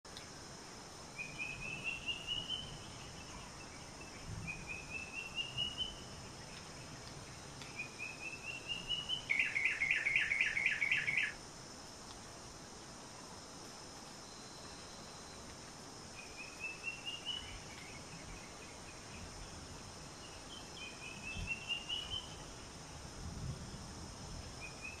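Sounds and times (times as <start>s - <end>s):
insect hiss: 0.1s - 25.0s
bird singing: 1.2s - 11.4s, 16.1s - 19.6s, 20.2s - 22.4s.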